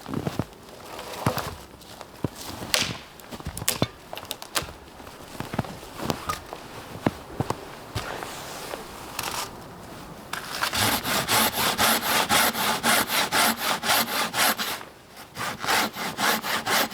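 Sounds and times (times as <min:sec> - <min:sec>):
footsteps in snow: 0:00.0 - 0:11.5
dry wood cracking and snapping: 0:02.3 - 0:08.0.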